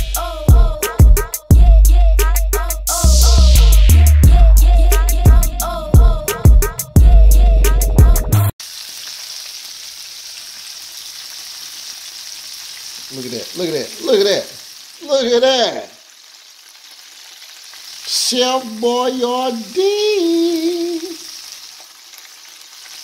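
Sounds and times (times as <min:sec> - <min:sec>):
hip hop music: 0:00.0 - 0:08.5, 0:18.1 - 0:20.5
deep-frying sizzle: 0:08.6 - 0:23.0
man's voice: 0:13.1 - 0:16.0, 0:18.1 - 0:21.2.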